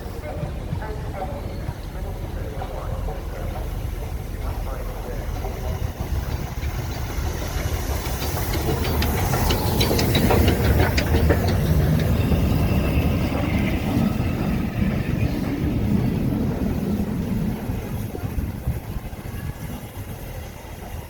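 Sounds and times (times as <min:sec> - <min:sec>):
train rumbling: 0:00.0 - 0:21.0
wheels clicking over rail joints: 0:04.3 - 0:17.2.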